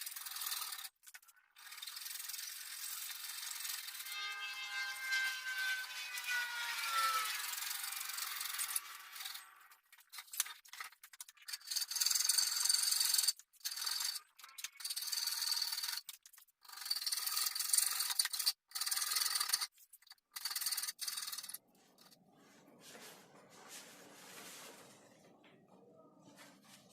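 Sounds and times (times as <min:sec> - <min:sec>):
rasping scraping bursts: 0:01.6 - 0:22.2.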